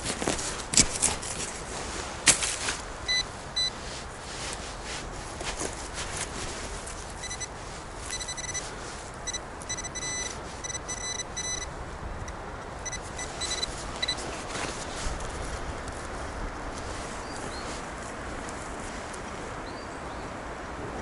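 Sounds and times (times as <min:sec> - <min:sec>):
wind and road noise: 0:00.0 - 0:21.0
metal detector beeps: 0:03.1 - 0:03.8, 0:07.2 - 0:07.5, 0:08.1 - 0:14.2.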